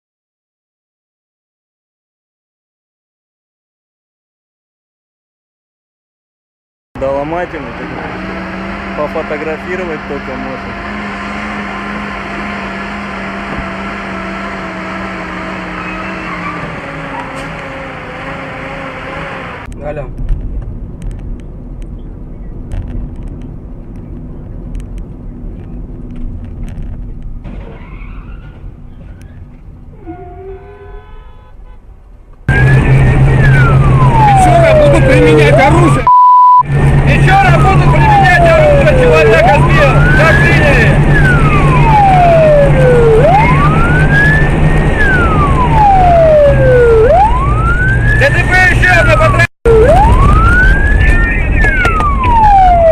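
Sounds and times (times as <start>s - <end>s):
car engine and road noise: 7.0s - 52.9s
emergency vehicle siren wailing: 7.1s - 19.7s, 32.5s - 52.9s.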